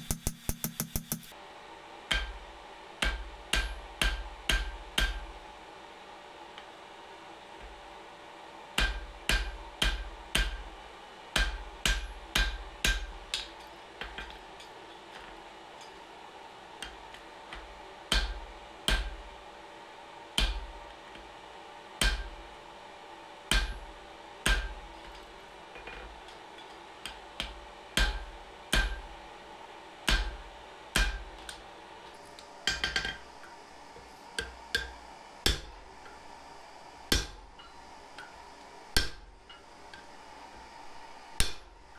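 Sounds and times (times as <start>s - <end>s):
steady hum: 0.0s - 41.9s
hammer striking steel on anvil: 2.1s - 5.4s, 8.8s - 10.7s, 11.4s - 14.9s, 16.8s - 19.2s, 20.4s - 20.7s, 22.0s - 22.4s, 23.5s - 29.2s, 30.1s - 30.4s, 31.0s - 31.6s, 32.6s - 33.3s, 34.4s - 36.2s, 37.1s - 38.4s, 39.0s - 40.1s, 41.4s - 41.6s.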